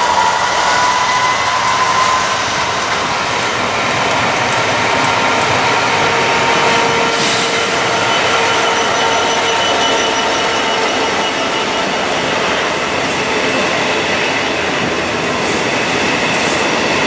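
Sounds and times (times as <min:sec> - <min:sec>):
diesel locomotive engine: 0:00.0 - 0:17.0
whining tones: 0:06.4 - 0:13.0.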